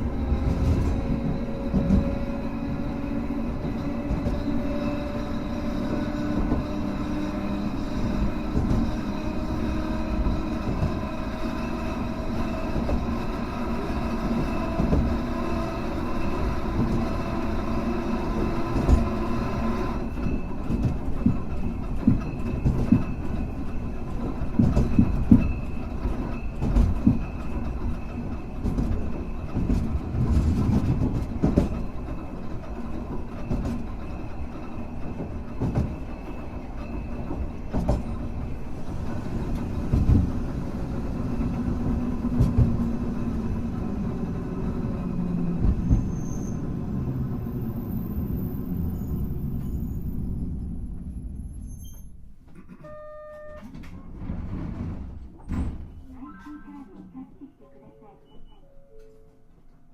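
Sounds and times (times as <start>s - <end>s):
tram hum: 0.0s - 59.9s
wheels knocking on rails: 18.4s - 44.3s.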